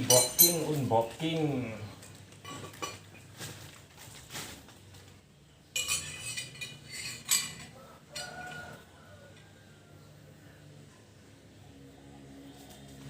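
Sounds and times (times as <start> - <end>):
metal exhaust clinking: 0.0 - 1.0, 5.7 - 8.3
packaging rustling: 3.3 - 5.2.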